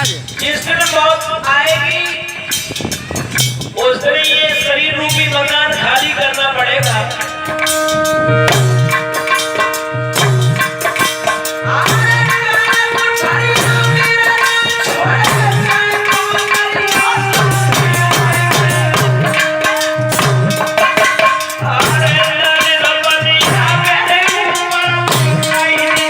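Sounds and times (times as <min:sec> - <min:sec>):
shaking rattling percussion: 0:00.0 - 0:26.0
steady repeating drum beat: 0:00.0 - 0:26.0
long held melody notes: 0:06.7 - 0:26.0.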